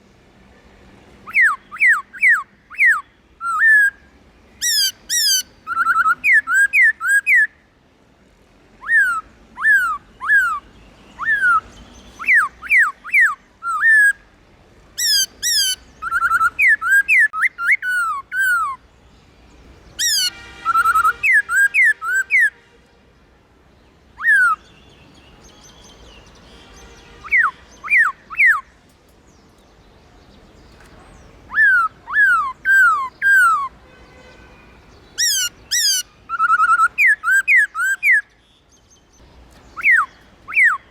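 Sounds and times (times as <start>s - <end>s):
bird singing whistles: 1.2s - 7.5s, 8.8s - 14.2s, 15.0s - 18.8s, 20.0s - 22.5s, 24.2s - 28.7s, 31.5s - 33.7s, 35.2s - 38.3s, 39.7s - 40.9s.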